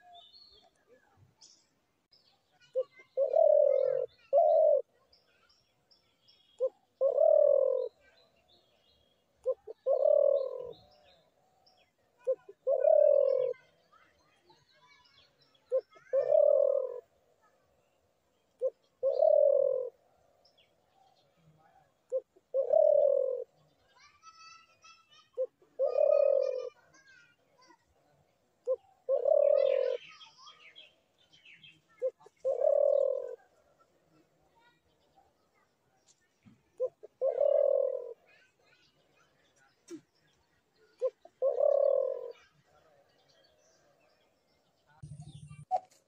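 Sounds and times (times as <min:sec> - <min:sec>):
small birds chirping: 0:00.0 - 0:46.0
dove cooing: 0:02.7 - 0:05.0, 0:06.6 - 0:08.1, 0:09.4 - 0:11.1, 0:12.2 - 0:13.8, 0:15.6 - 0:17.2, 0:18.6 - 0:20.0, 0:21.6 - 0:23.6, 0:25.4 - 0:26.9, 0:28.6 - 0:30.2, 0:31.9 - 0:34.2, 0:36.7 - 0:38.4, 0:41.0 - 0:42.9.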